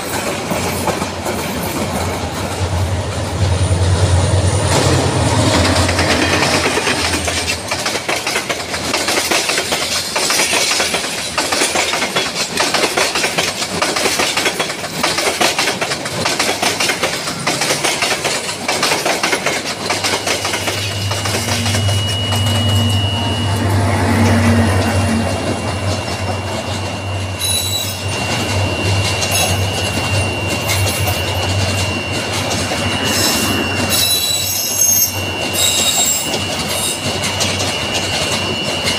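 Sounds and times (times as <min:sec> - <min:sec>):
train wheels clacking over rail joints: 0:00.0 - 0:22.9, 0:24.1 - 0:38.9
high wheel squeal: 0:02.6 - 0:07.8, 0:20.1 - 0:38.9.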